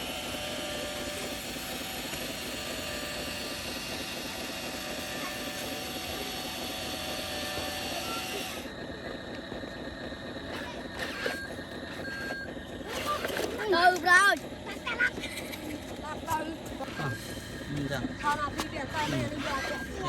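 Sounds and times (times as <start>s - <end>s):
electric motors whirring: 0.0s - 20.0s.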